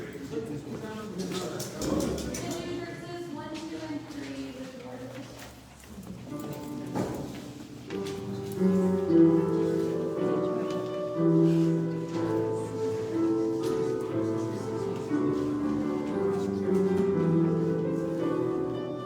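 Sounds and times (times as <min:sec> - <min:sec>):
church hymn music: 0:06.4 - 0:19.0.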